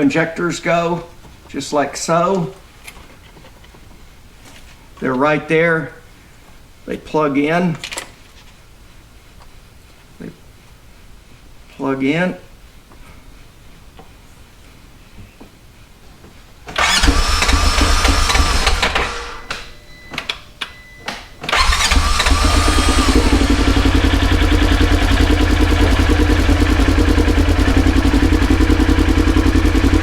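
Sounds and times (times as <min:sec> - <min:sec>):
engine starting and idling: 0:16.7 - 0:19.7, 0:21.4 - 0:30.0
engine coughing: 0:21.5 - 0:30.0.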